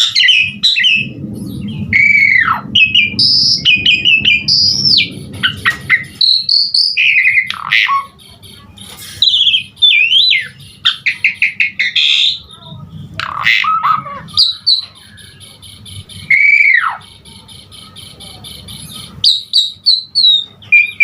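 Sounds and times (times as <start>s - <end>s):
low rumble: 0.0s - 7.5s
bird singing whistles and chatter: 0.0s - 21.0s.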